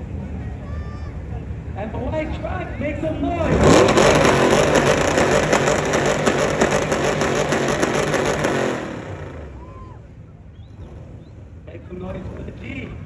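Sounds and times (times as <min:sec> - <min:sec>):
truck engine revving: 0:01.5 - 0:13.0.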